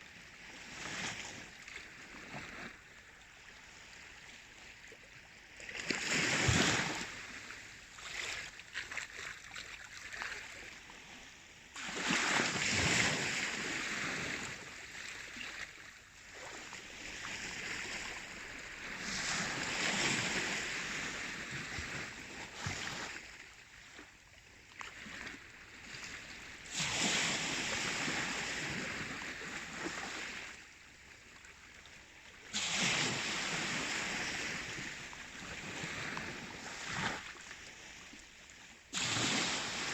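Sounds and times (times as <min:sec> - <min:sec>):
sea waves washing in: 0:05.8 - 0:07.9, 0:11.8 - 0:15.6, 0:16.2 - 0:23.3, 0:25.1 - 0:30.6, 0:32.4 - 0:39.9.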